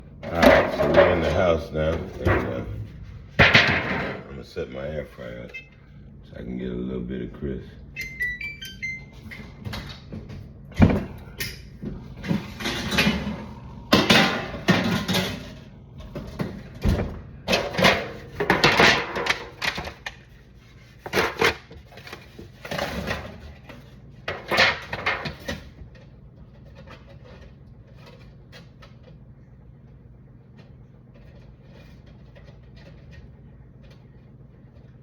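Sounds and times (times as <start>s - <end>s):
kitchen items clattering: 0.0s - 4.5s, 9.2s - 29.0s.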